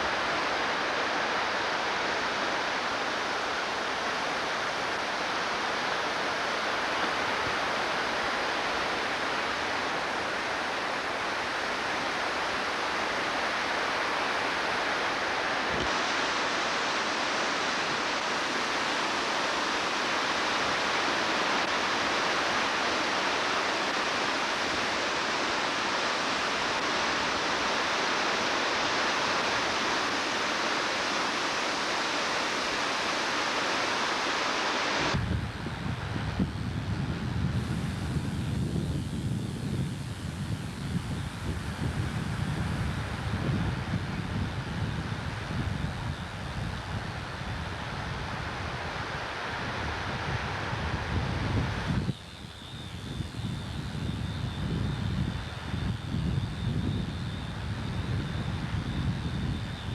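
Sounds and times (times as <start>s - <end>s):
creek water rushing: 0.0s - 35.2s
wind buffeting microphone: 35.1s - 48.8s.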